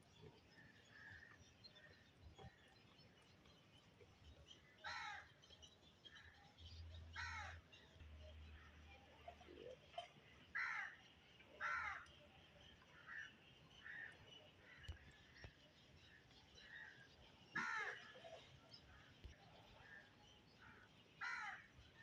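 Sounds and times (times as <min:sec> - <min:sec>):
crows cawing: 0:04.8 - 0:05.2, 0:07.2 - 0:07.6, 0:10.6 - 0:10.9, 0:11.6 - 0:12.0, 0:17.6 - 0:18.0, 0:21.2 - 0:21.6.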